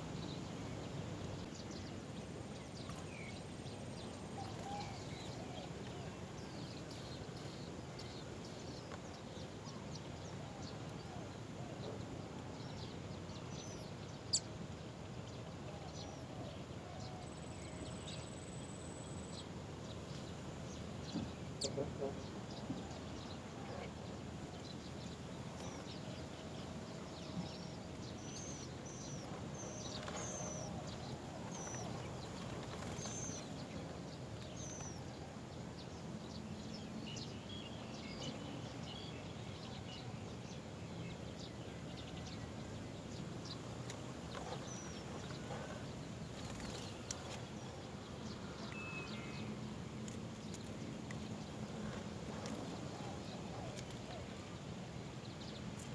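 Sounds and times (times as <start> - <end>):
low background noise: 0.0 - 55.9
small birds chirping: 24.5 - 40.0, 41.1 - 54.6.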